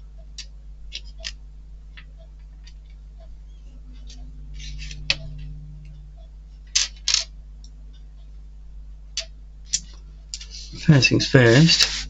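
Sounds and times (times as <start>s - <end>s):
faint low hum: 0.0s - 12.0s
sharp clicks and taps of plastic parts: 0.2s - 3.0s.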